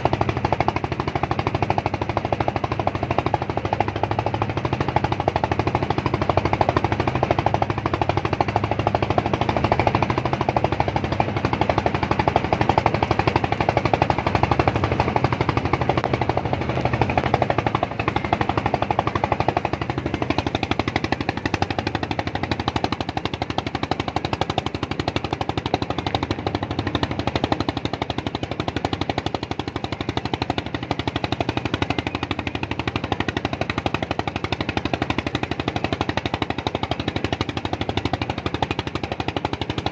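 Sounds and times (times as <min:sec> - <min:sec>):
engine puttering: 0:00.0 - 0:39.9.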